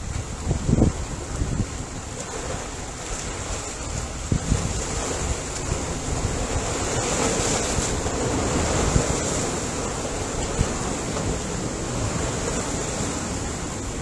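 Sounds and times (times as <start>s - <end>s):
ocean waves washing onto shore: 0.0s - 14.0s
wind buffeting microphone: 0.0s - 14.0s.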